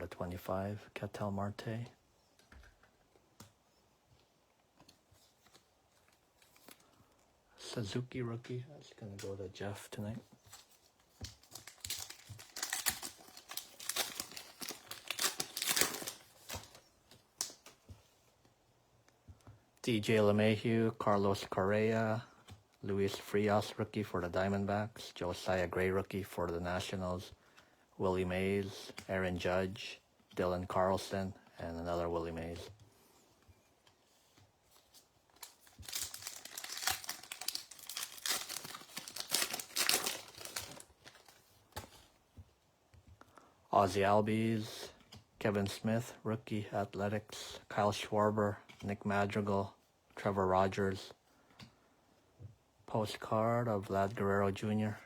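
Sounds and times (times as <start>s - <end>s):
card pack wrapper crinkling and tearing: 10.5s - 17.8s, 35.3s - 42.0s.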